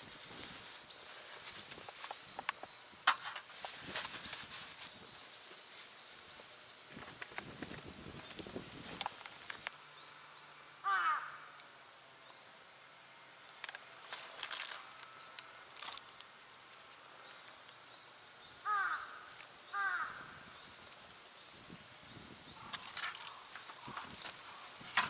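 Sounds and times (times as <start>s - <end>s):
crow cawing: 10.8s - 11.6s, 18.6s - 20.5s.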